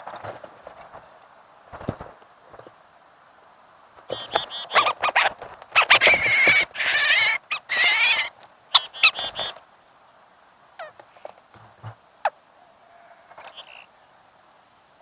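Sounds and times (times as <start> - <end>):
birds squawking and screeching: 4.1 - 9.6, 12.6 - 13.9
faint short bird calls: 4.1 - 9.7, 10.8 - 11.4, 12.2 - 14.2.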